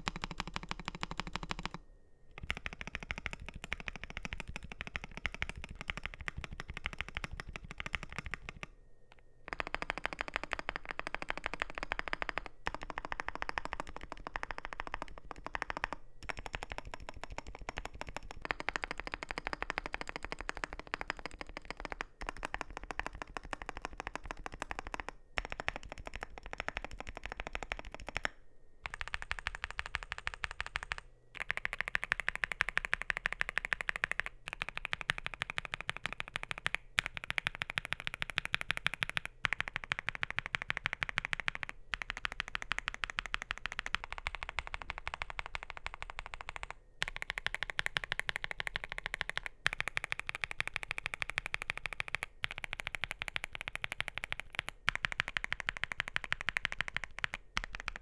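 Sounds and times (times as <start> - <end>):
mechanical keyboard typing: 0.0 - 1.8, 2.4 - 8.7, 9.5 - 58.0.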